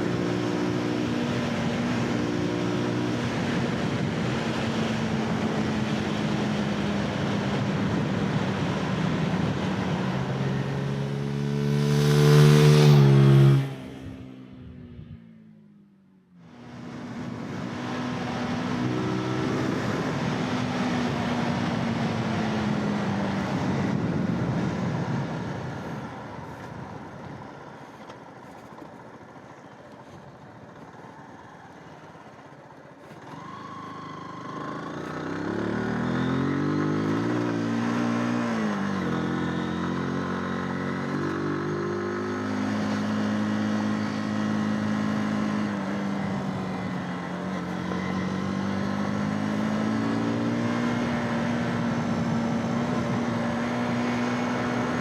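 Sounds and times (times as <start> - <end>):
motorcycle engine running: 16.4 - 55.0
wind rush: 16.8 - 27.5.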